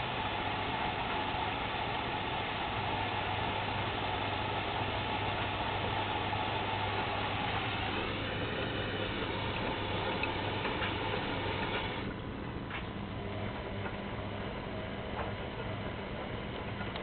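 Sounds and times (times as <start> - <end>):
washing machine and dryer humming: 0.0 - 17.0
light ticks: 16.8 - 17.0.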